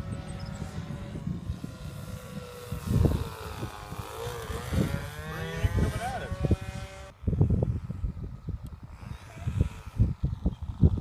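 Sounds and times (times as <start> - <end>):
model airplane motor droning: 0.0 - 11.0
wind buffeting microphone: 0.0 - 11.0.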